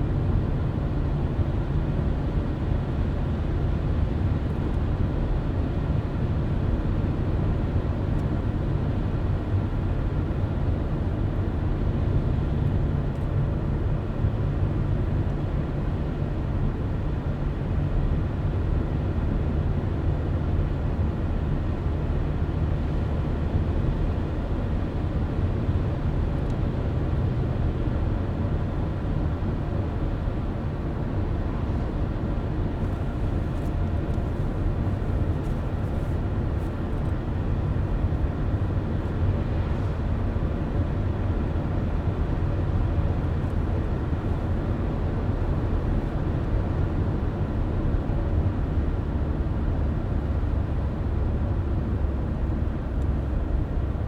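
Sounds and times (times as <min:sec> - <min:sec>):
car driving road rumble: 0:23.7 - 0:54.0.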